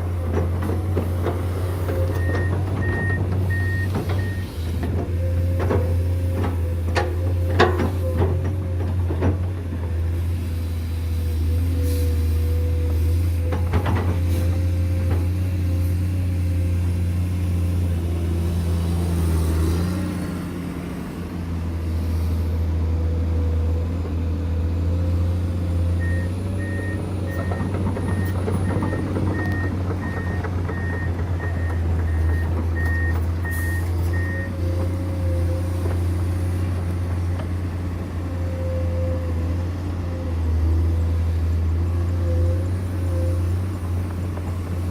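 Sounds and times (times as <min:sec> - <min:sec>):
diesel machinery engine hum: 0:00.0 - 0:44.9
reversing alarm beeping: 0:02.1 - 0:04.5, 0:26.0 - 0:34.6.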